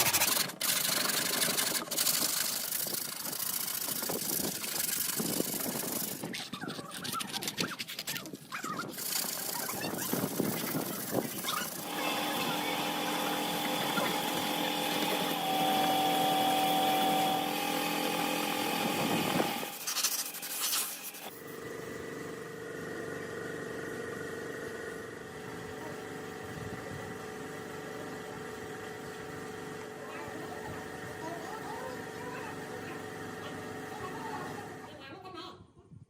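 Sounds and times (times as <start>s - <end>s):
small motor running: 0.0s - 34.9s
quieter motor hum: 8.9s - 34.9s.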